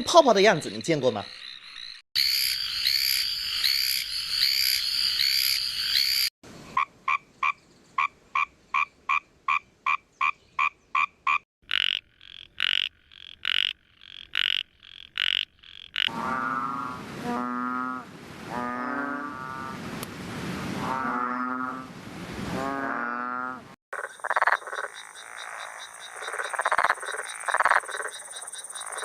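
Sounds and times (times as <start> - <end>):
tree frogs chorus: 0.2 - 16.4, 23.9 - 29.0
frogs giving buzzy rasps: 0.4 - 19.6, 22.8 - 29.0
frogs giving short notes: 0.7 - 16.1
bullfrog lowing call: 1.2 - 19.8.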